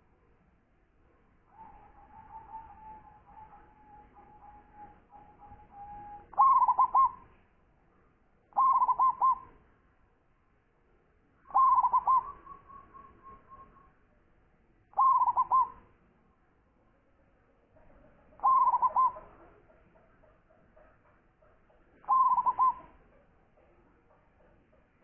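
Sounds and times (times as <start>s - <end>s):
dove cooing: 5.6s - 7.2s, 8.6s - 9.5s, 11.5s - 12.7s, 15.0s - 15.8s, 18.4s - 19.7s, 22.0s - 23.1s.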